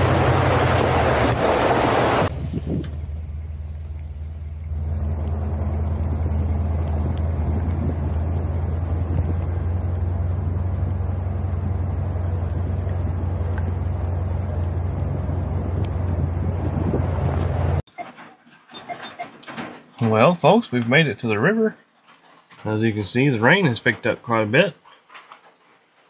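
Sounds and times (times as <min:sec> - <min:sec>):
road noise: 0:00.0 - 0:17.9
truck engine drone: 0:00.0 - 0:17.9.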